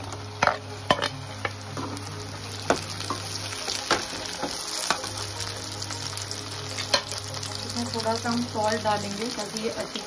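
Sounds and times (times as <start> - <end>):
vegetables sizzling in hot oil: 0.0 - 10.0.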